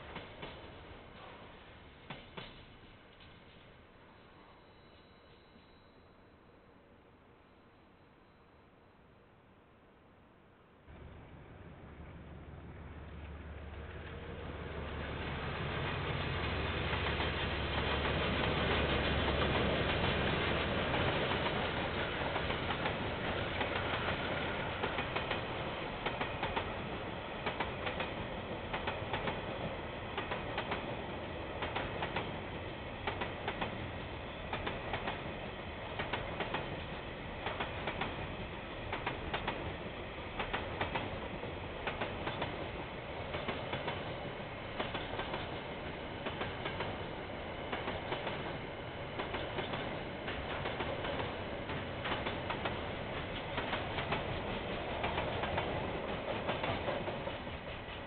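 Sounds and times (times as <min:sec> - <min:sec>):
train rumble: 0:10.9 - 0:58.0
train wheels clicking over rail joints: 0:15.0 - 0:32.4, 0:33.0 - 0:58.0.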